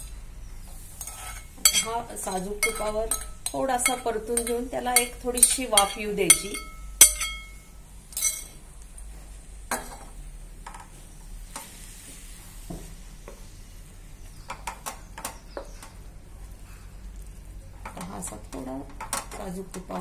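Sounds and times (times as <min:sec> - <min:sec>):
food sizzling in a pan: 0:00.5 - 0:08.5, 0:09.8 - 0:15.0
spatula scraping and tapping pan: 0:00.7 - 0:07.6.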